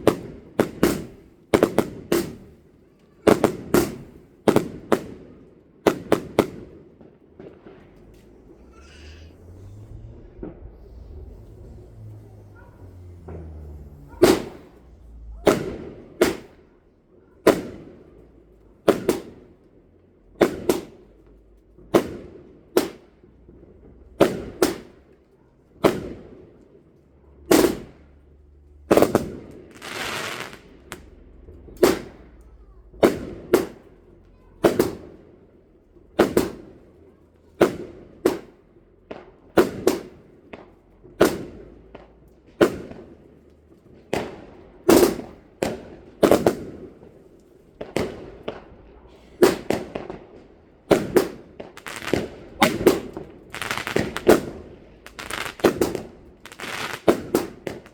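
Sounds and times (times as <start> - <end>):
fireworks bangs: 0.0 - 19.6, 28.9 - 36.9, 37.5 - 57.9
hissing crackle: 7.8 - 16.6, 51.6 - 55.9.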